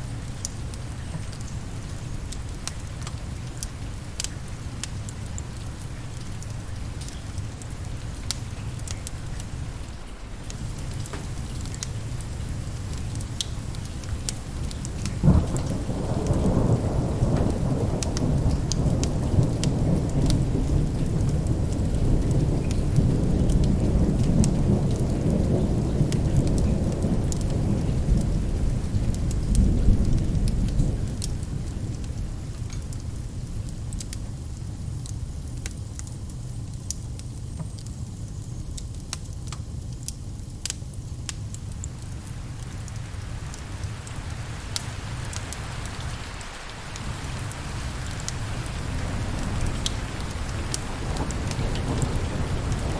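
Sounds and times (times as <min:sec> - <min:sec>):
steady rain: 0:00.0 - 0:52.9
wood fire crackling: 0:00.0 - 0:52.9
thunder rumbling: 0:10.4 - 0:32.4, 0:42.4 - 0:52.9.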